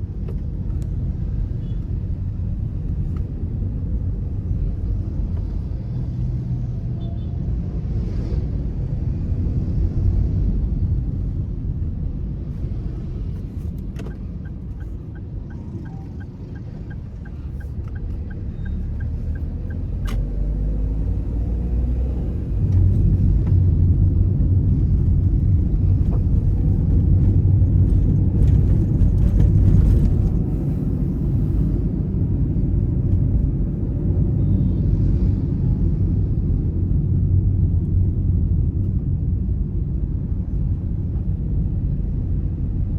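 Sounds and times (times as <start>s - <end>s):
car engine and road noise: 0.0s - 42.9s.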